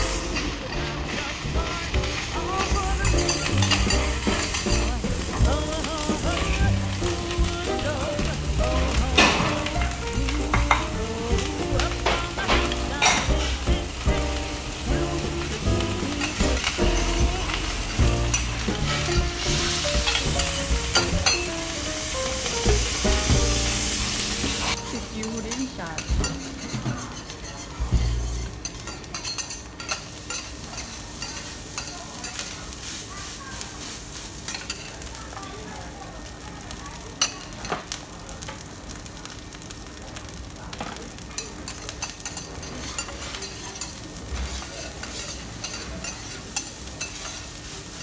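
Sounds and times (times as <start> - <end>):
metal spatulas scraping griddle: 0.0 - 7.6, 8.2 - 21.6, 22.4 - 32.8, 42.0 - 48.0
rice sizzling on a hot plate: 0.0 - 48.0.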